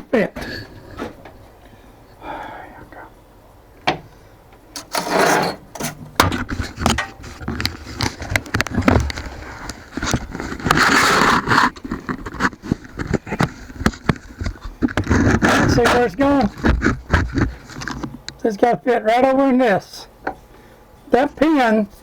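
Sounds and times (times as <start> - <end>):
metal block scraping: 4.8 - 8.2
metal clicks and knocks: 5.8 - 9.3.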